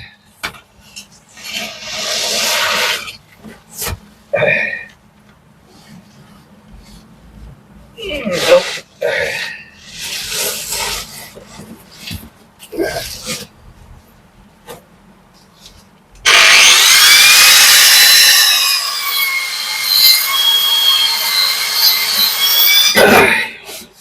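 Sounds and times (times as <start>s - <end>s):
angle grinder cutting brick: 1.4s - 3.2s, 16.2s - 23.9s.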